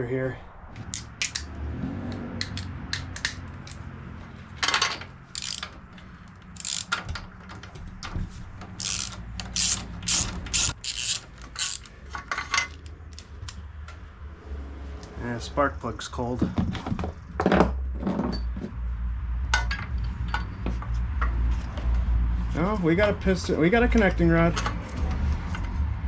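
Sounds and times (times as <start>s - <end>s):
ratchet wrench clicking: 5.3s - 5.7s, 6.4s - 7.0s, 8.8s - 12.0s.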